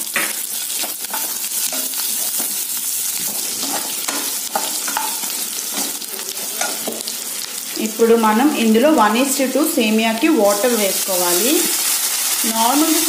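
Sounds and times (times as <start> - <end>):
food sizzling in hot oil: 0.0 - 13.0
spatula stirring and scraping: 0.2 - 7.2.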